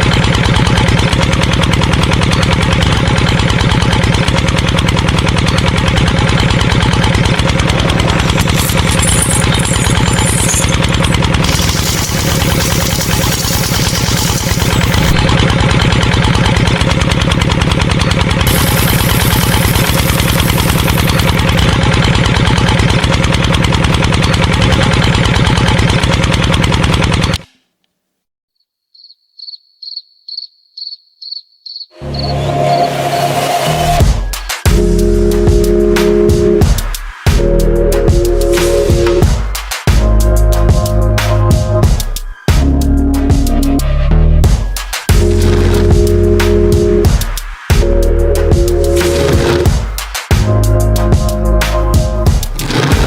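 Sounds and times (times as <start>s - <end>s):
small motor with ticking rattle: 0.0s - 27.5s
short high-pitched beeps: 8.5s - 10.8s.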